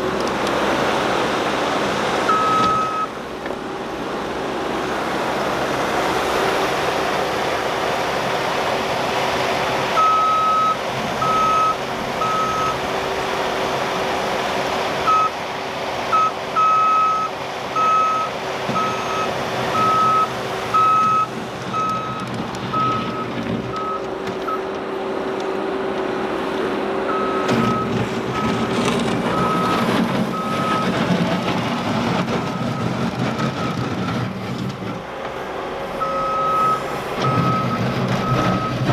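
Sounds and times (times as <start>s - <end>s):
diesel engine running: 0.0s - 38.9s
reversing alarm beeps: 2.3s - 3.1s, 10.0s - 12.8s, 15.1s - 15.4s, 16.2s - 24.6s, 27.1s - 28.6s, 36.0s - 38.9s.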